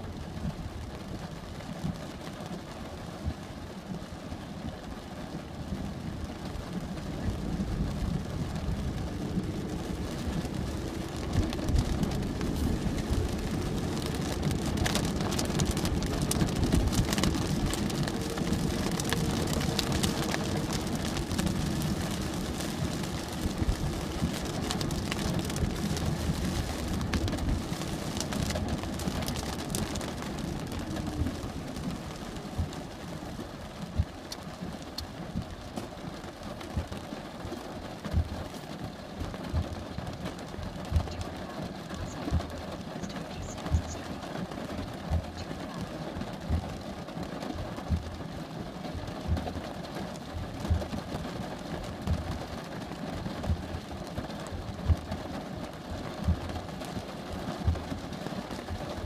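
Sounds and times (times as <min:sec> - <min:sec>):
rain pattering: 0:00.0 - 0:59.0
vehicle engine humming: 0:06.0 - 0:35.6.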